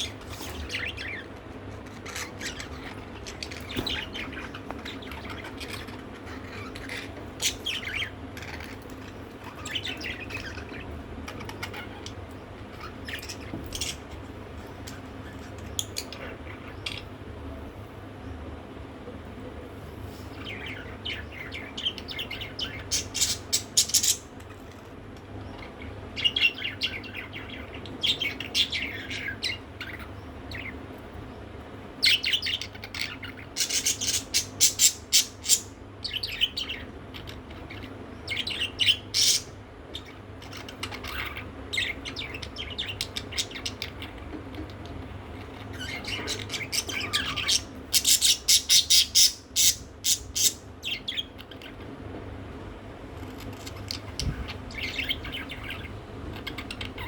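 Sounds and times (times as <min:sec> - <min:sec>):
budgerigar chirping and warbling: 0:00.0 - 0:14.1, 0:32.0 - 0:51.8, 0:53.4 - 0:57.0.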